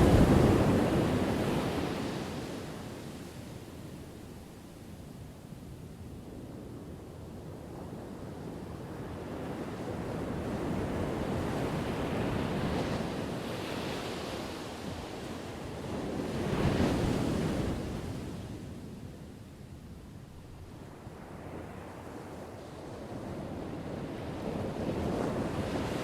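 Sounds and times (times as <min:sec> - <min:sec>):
ocean waves crashing on shore: 0:00.0 - 0:04.3, 0:20.8 - 0:26.0.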